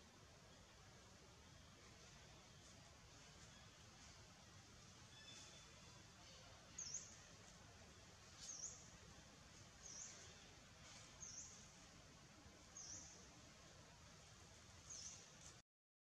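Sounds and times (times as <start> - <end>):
faint forest ambience: 0.0 - 15.6
small bird chirping: 5.1 - 7.3, 8.4 - 8.9, 9.8 - 11.7.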